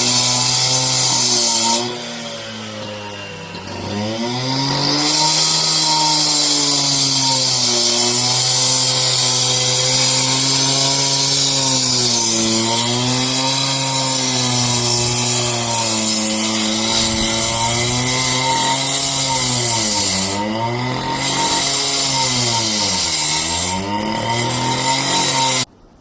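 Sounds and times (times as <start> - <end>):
power tool motor under load: 0.0 - 25.7.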